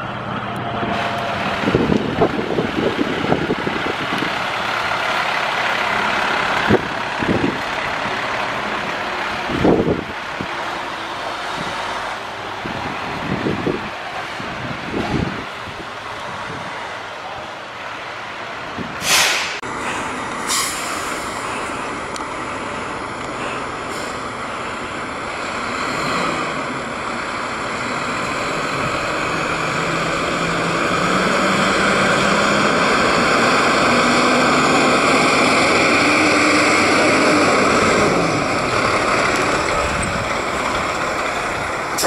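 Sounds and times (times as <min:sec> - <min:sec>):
diesel engine running: 0:00.0 - 0:42.0
air brakes hissing: 0:19.0 - 0:21.9, 0:23.4 - 0:24.3.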